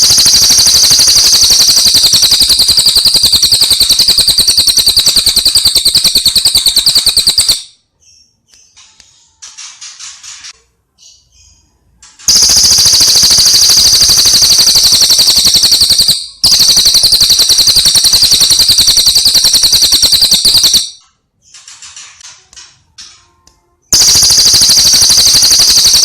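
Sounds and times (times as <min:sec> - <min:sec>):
fast high-pitched bird trill: 0:00.0 - 0:07.7, 0:12.3 - 0:21.0, 0:24.0 - 0:26.0.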